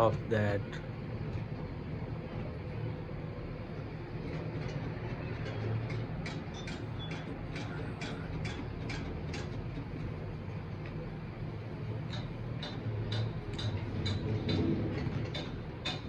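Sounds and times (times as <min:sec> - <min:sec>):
low engine rumble: 0:00.0 - 0:00.9.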